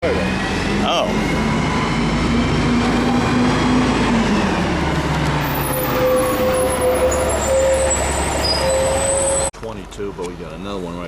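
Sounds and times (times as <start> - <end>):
bus engine slowing: 0.0 - 9.5
high brake squeal: 5.4 - 9.5.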